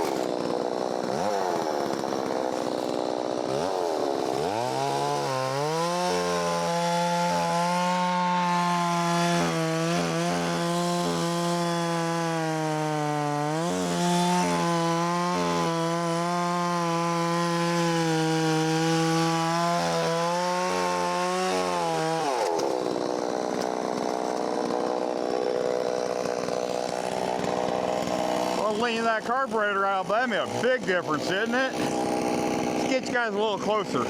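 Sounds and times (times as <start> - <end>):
chainsaw running fast: 0.0 - 34.0.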